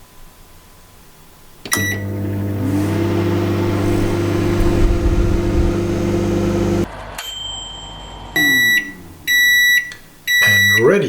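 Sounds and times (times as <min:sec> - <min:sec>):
microwave click: 0:01.7 - 0:06.8
microwave oven humming: 0:01.7 - 0:06.9
microwave beep: 0:01.7 - 0:07.8, 0:08.4 - 0:11.0.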